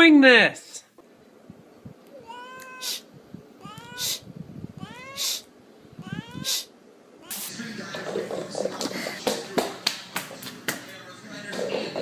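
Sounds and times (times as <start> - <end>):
cat meowing: 2.1 - 4.2, 4.8 - 7.5.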